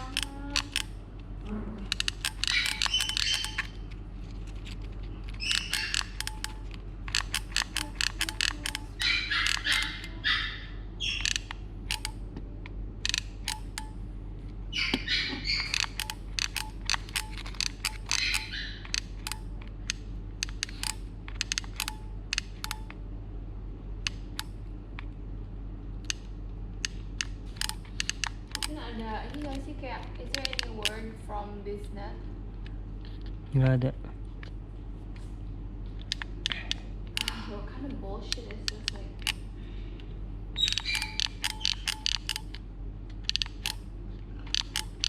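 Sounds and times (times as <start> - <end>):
sharp clicks: 0.0 - 1.3, 1.9 - 4.0, 4.6 - 10.2, 11.0 - 14.0, 14.9 - 23.0, 24.0 - 25.1, 26.0 - 31.2, 36.0 - 37.4, 38.3 - 39.4, 40.6 - 45.0.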